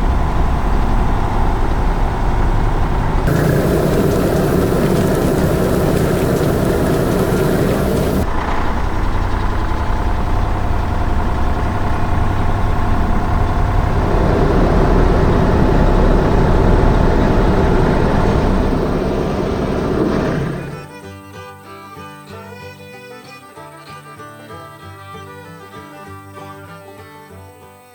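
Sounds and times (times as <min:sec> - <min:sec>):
heavy construction vehicle engine: 0:00.0 - 0:20.9.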